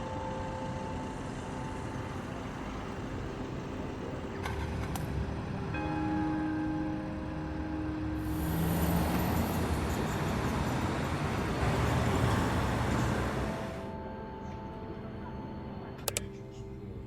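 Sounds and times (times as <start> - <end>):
vehicle passing close by: 8.2 - 13.9.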